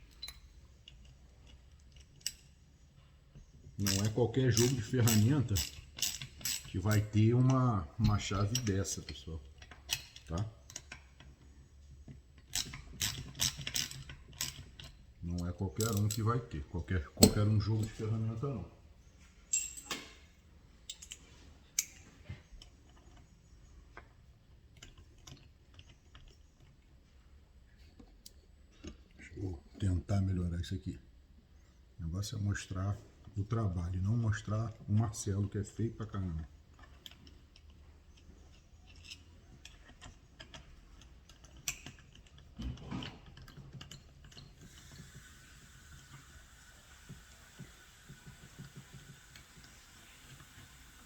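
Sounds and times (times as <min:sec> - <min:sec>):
hand tools clicking on metal parts: 0:03.8 - 0:11.4, 0:12.1 - 0:18.2, 0:19.5 - 0:20.1, 0:20.9 - 0:22.0, 0:35.1 - 0:45.2
metallic tool taps and clicks: 0:17.2 - 0:17.6.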